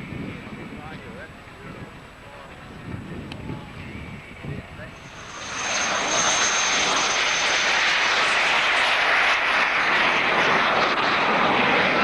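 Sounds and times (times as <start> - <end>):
aircraft engine passing overhead: 0.0 - 12.0
thin high whine: 4.8 - 11.3.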